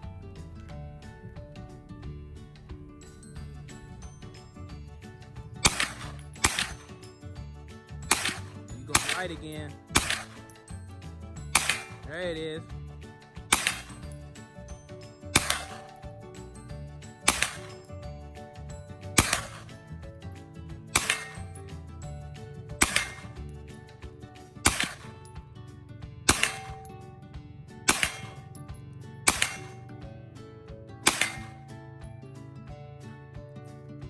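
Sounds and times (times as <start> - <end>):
background music tones: 0.0 - 34.0
gunshots with ring-out: 5.6 - 7.2, 7.9 - 16.4, 17.0 - 18.0, 19.0 - 19.9, 20.8 - 25.3, 26.2 - 30.1, 31.0 - 31.9.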